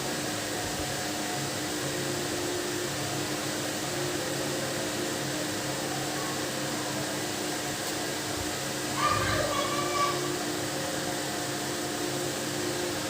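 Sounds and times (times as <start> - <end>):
electric fan whirring: 0.0 - 13.0.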